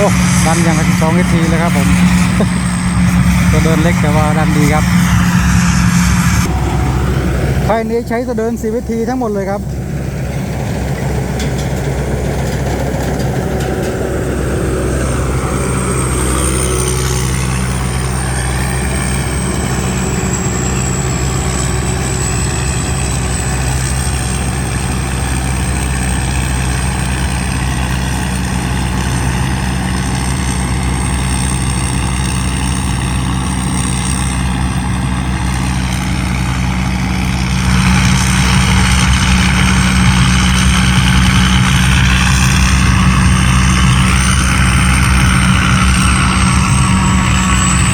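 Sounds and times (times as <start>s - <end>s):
thin high whine: 0.0s - 11.3s, 35.5s - 47.9s
diesel engine running: 0.0s - 47.9s.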